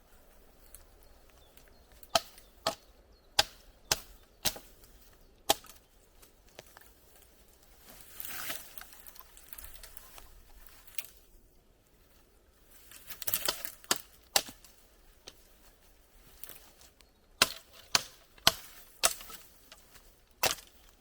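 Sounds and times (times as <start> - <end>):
chopping strikes into wood: 2.0 - 4.7, 17.4 - 19.4, 20.4 - 20.7.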